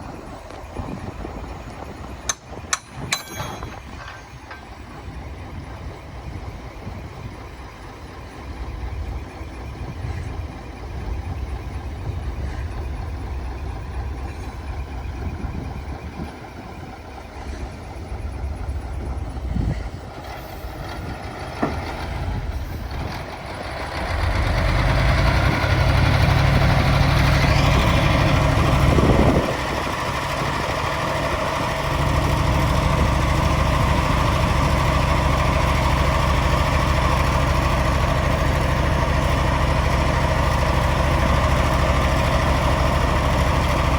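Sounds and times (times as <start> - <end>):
diesel truck engine rumbling: 0.0 - 43.9.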